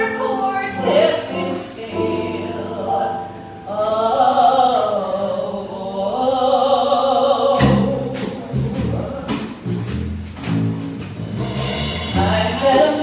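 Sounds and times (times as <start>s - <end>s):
live band playing: 0.0s - 3.7s, 7.6s - 13.0s
person singing: 0.0s - 9.6s, 12.2s - 13.0s.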